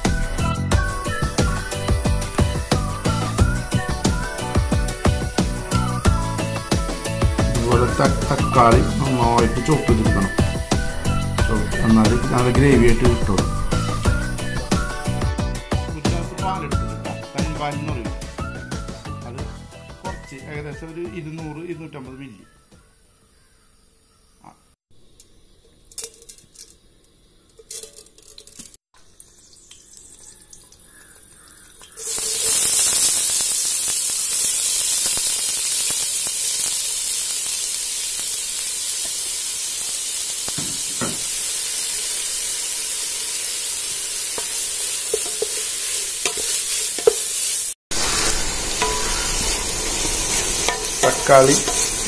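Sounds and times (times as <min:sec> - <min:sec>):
onions sizzling in hot oil: 0:00.0 - 0:15.8, 0:25.0 - 0:52.0
wooden spatula stirring: 0:45.1 - 0:47.6.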